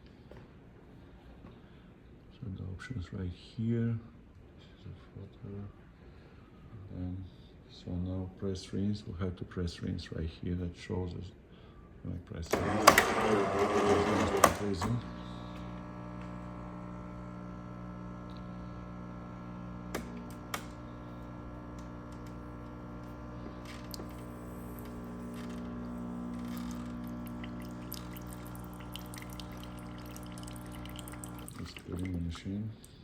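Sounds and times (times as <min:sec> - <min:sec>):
espresso machine pump hum: 0:12.5 - 0:32.4.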